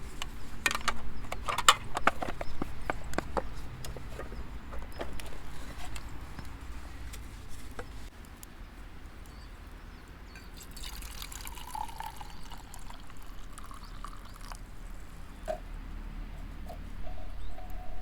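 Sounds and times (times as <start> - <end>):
liquid dripping and pouring: 10.6 - 14.7.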